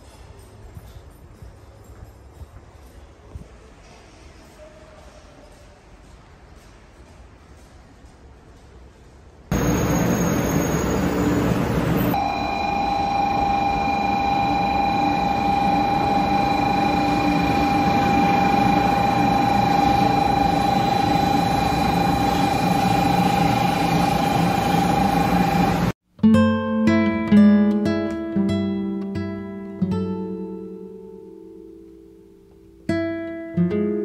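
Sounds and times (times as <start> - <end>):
train running noise: 0.0 - 25.9
electric whine: 9.5 - 26.0.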